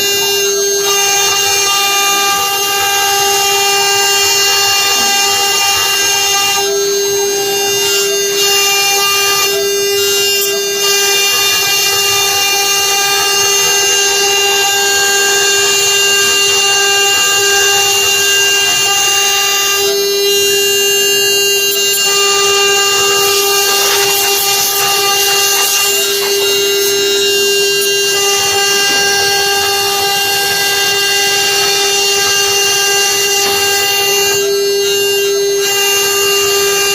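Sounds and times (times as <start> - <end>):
router spindle whine: 0.0 - 36.9
bit rasping through wood: 21.8 - 32.7.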